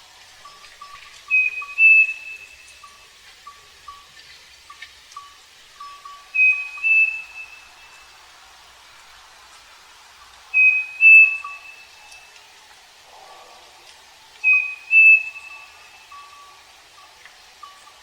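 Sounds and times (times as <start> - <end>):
bird two-note whistled song: 0.4 - 4.1, 5.2 - 8.1, 10.5 - 12.3, 14.4 - 16.6.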